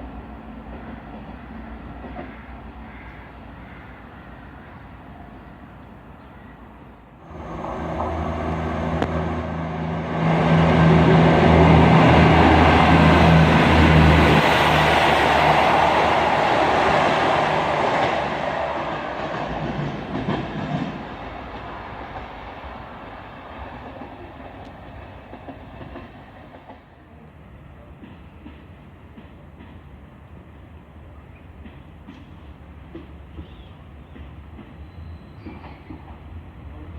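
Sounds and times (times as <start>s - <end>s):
diesel train engine drone: 0.0s - 27.6s
wheels rumbling on rails: 7.2s - 27.0s.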